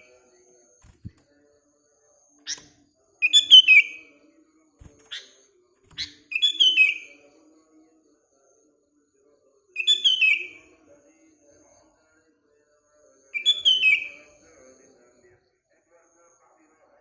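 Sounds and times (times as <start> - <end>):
bird singing falling phrase: 13.4 - 14.3.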